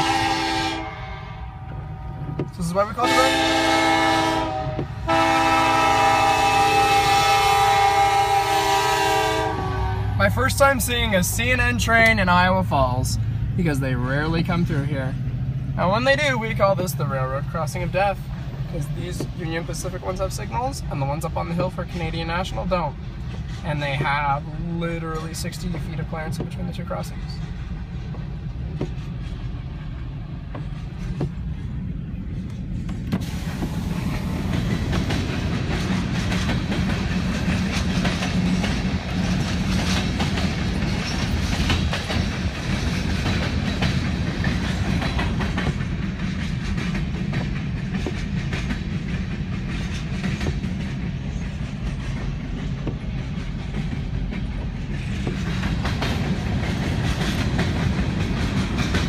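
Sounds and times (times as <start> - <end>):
freight train rumbling: 0.0 - 59.0
wheels clattering over rails: 21.7 - 59.0.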